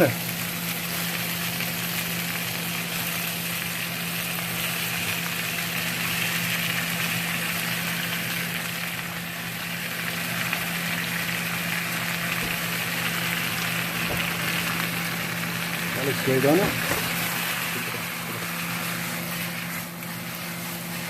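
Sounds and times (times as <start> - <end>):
meat sizzling in a wok: 0.0 - 21.0
steady low hum: 8.3 - 21.0.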